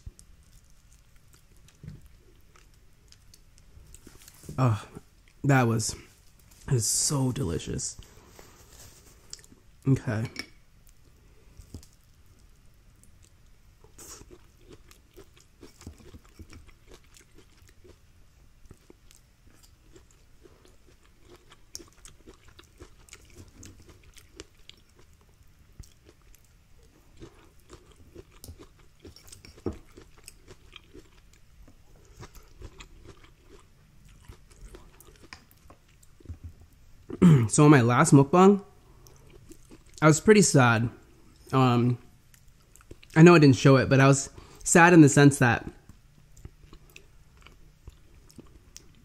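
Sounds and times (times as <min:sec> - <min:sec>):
person chewing corn: 0:00.0 - 0:05.4, 0:10.9 - 0:37.2, 0:38.9 - 0:40.0, 0:42.2 - 0:43.2, 0:45.8 - 0:49.0.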